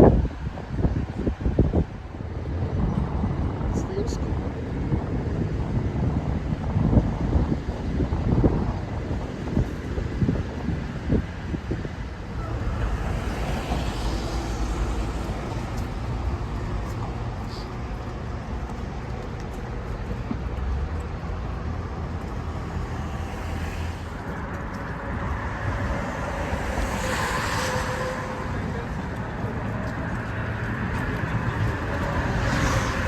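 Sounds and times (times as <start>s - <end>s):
passing cars rumble: 0.0s - 33.0s.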